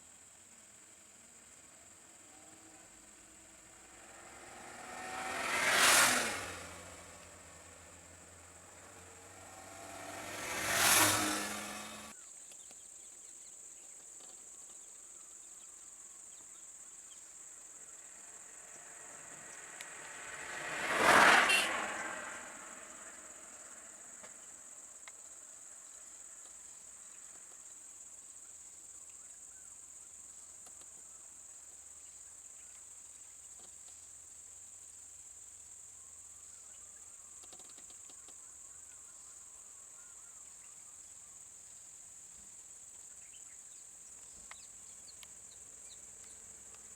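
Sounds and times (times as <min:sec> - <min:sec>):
high-pitched insect chorus: 0:00.1 - 0:46.9
vehicles driving past: 0:02.3 - 0:12.2, 0:17.5 - 0:25.0.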